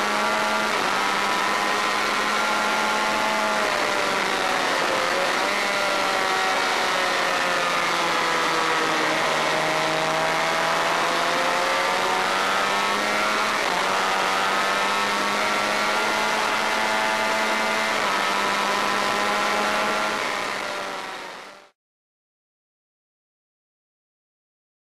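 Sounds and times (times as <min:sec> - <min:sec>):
motorcycle engine running: 0:00.0 - 0:21.4.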